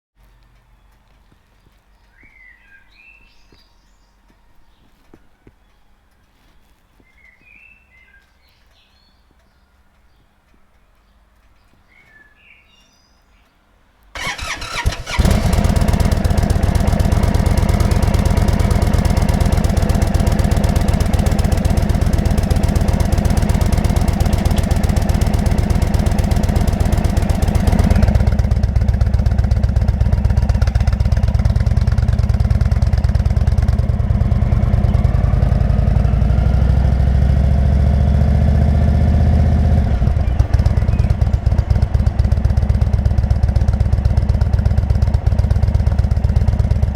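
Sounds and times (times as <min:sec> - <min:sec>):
motorcycle engine starting and idling: 0:14.2 - 0:46.9.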